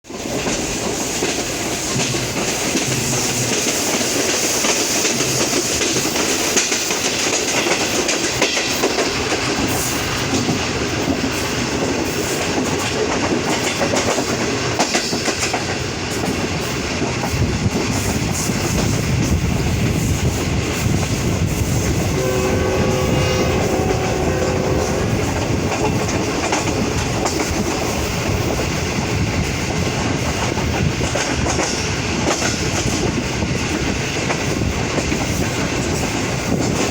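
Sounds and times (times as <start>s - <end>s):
passenger train rumbling: 0.0s - 36.9s
locomotive horn: 22.0s - 27.5s.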